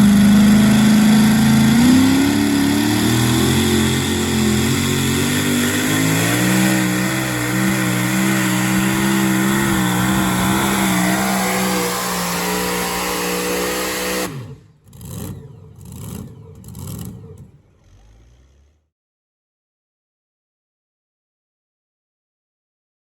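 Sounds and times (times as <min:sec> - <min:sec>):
truck engine at high revs: 0:00.0 - 0:18.9.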